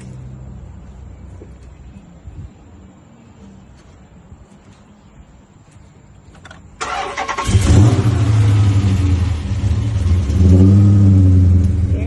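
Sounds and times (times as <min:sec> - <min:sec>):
car starter cranking: 0:06.8 - 0:08.7
car engine idling: 0:06.8 - 0:12.0.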